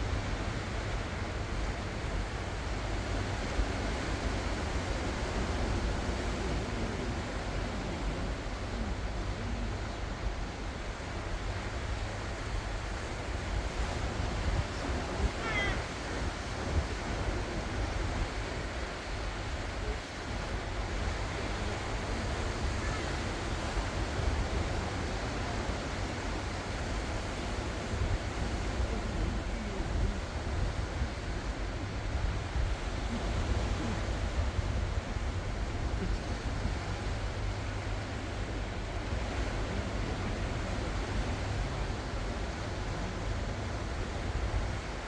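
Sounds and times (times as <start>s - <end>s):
ocean waves on shore: 0.0s - 45.0s
wind rumbling on microphone: 0.0s - 45.0s.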